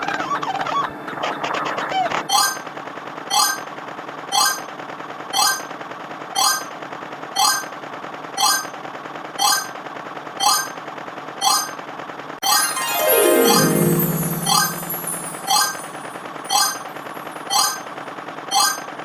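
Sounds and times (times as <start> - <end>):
keyboard music: 12.4 - 17.4.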